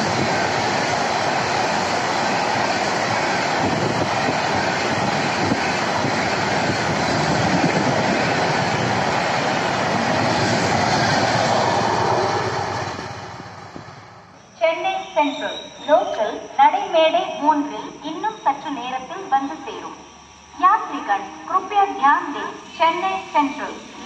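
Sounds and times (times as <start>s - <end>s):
train wheels rushing on rails: 0.0s - 14.4s.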